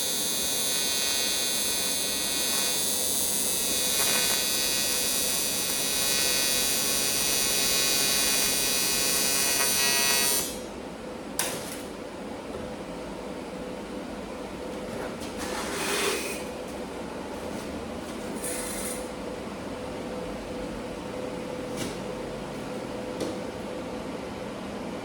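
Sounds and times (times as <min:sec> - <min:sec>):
welding arc buzzing: 0:00.0 - 0:10.6.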